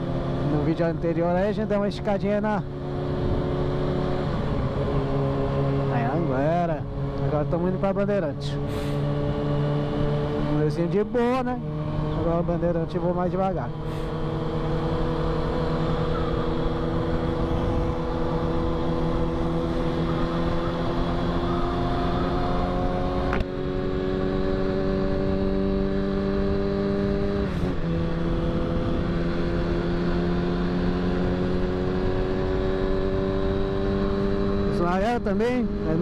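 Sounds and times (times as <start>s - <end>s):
motorcycle engine cruising: 0.0s - 36.0s
wind rush: 13.8s - 20.1s.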